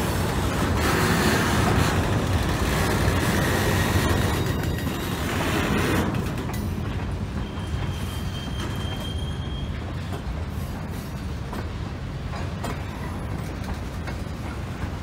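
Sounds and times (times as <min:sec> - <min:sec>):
freight cars rumbling on rails: 0:00.0 - 0:15.0
high wheel squeal: 0:07.4 - 0:10.1.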